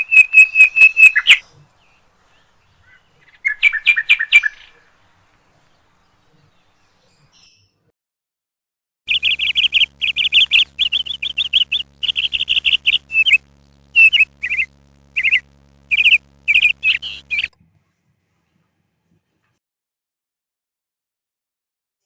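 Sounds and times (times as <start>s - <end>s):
faint steady hum: 0.0s - 7.3s, 9.1s - 19.5s
small bird chirping: 0.0s - 7.8s, 9.1s - 17.5s.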